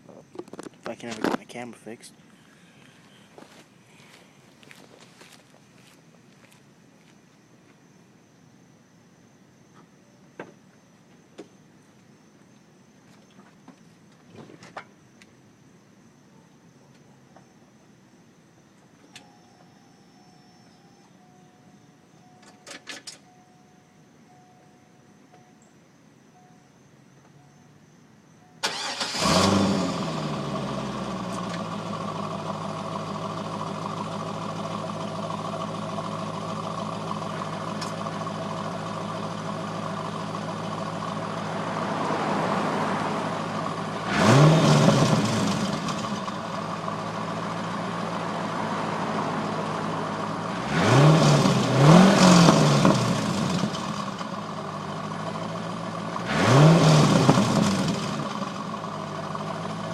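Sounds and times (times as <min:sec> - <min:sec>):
car engine idling: 0:28.6 - 0:59.9.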